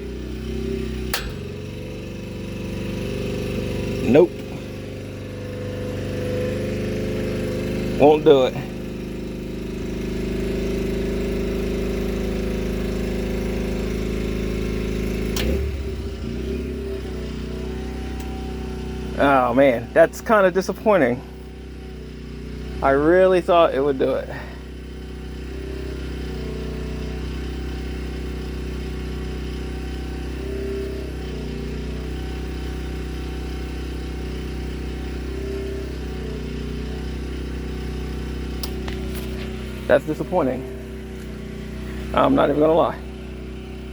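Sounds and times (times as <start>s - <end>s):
generator engine running: 0.0s - 43.9s
low hum: 0.7s - 3.0s
sharp click: 1.1s - 1.8s, 38.6s - 39.5s.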